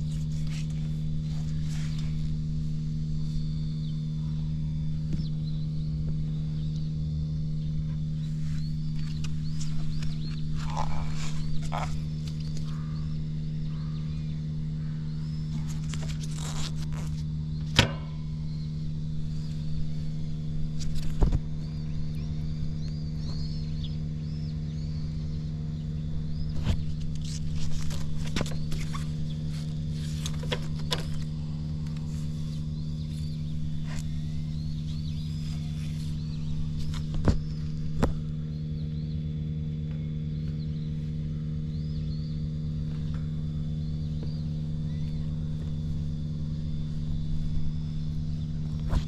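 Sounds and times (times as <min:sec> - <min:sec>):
motorcycle engine idling: 0:00.0 - 0:49.0.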